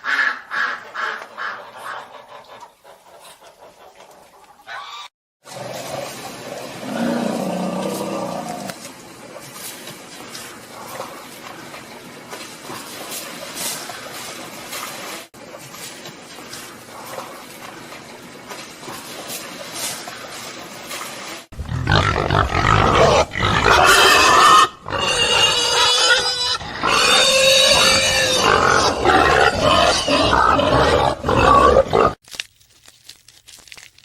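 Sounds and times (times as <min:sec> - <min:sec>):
rustling: 0:32.2 - 0:34.0.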